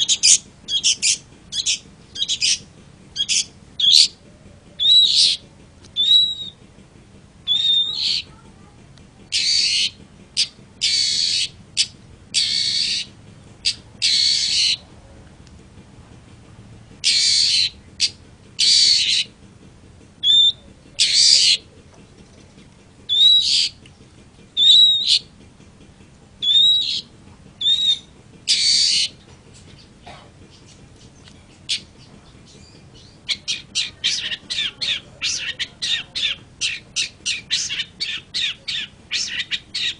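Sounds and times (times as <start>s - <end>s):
shrike harsh rasping calls: 0.0s - 5.4s, 6.0s - 6.6s, 7.4s - 8.4s, 9.3s - 14.8s, 17.0s - 19.4s, 20.2s - 21.7s, 23.1s - 23.8s, 24.6s - 25.3s, 26.4s - 29.2s, 29.8s - 39.9s.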